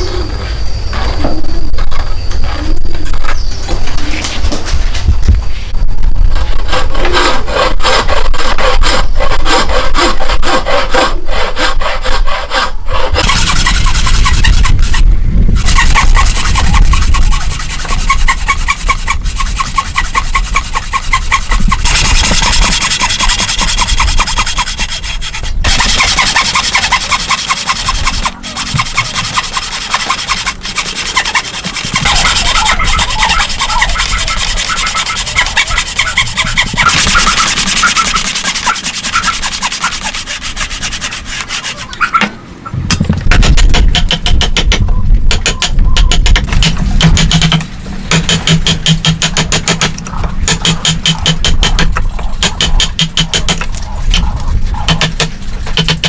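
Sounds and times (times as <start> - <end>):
hand tools working wood: 6.4 - 42.3, 43.0 - 56.0
sawing strokes: 6.4 - 42.3.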